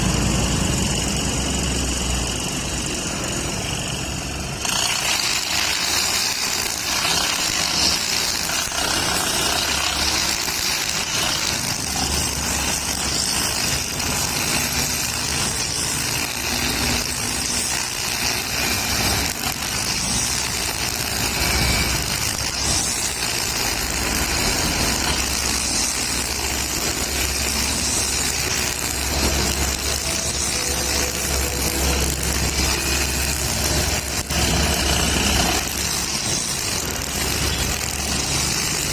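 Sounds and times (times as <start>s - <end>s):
brush cutter engine running: 0.0s - 38.9s.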